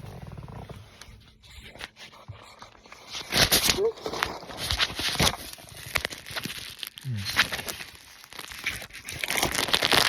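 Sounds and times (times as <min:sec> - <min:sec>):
food packaging crinkling: 0:02.9 - 0:10.0.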